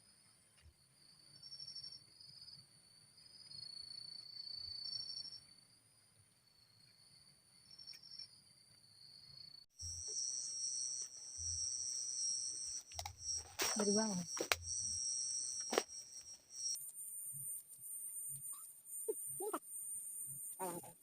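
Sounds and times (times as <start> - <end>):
high insect drone: 9.1 - 21.0
insects trilling: 9.4 - 21.0.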